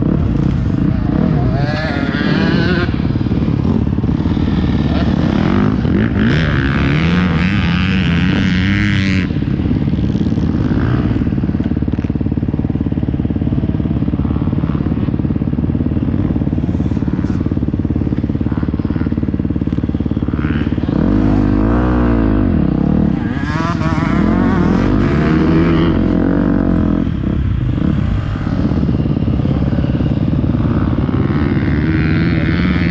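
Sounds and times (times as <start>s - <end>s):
motocross bike engine revving: 0.0s - 32.9s.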